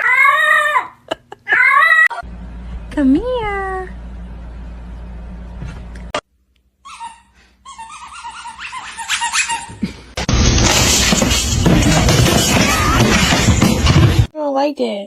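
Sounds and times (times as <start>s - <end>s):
steady low hum: 2.2s - 6.6s.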